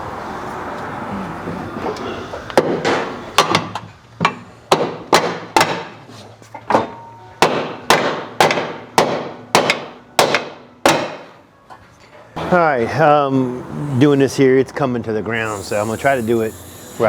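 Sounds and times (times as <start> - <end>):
hammer striking metal: 6.8 - 11.4.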